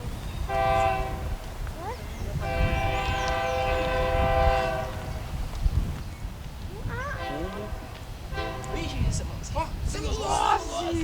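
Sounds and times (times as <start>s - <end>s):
train rumbling past: 0.2s - 5.5s, 6.9s - 9.9s
locomotive air horn blasts: 0.5s - 1.4s, 2.4s - 5.1s, 7.2s - 9.0s.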